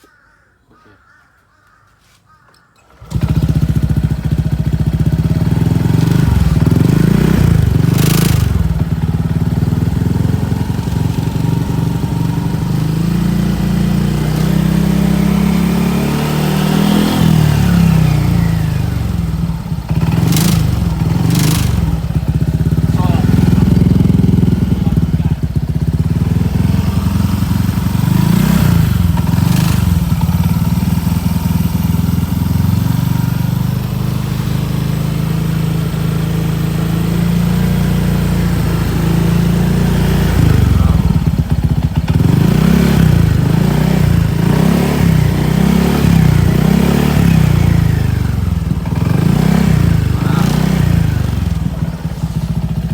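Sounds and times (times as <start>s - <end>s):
motorcycle engine idling: 2.8s - 52.9s
motorcycle engine revving: 2.8s - 52.9s.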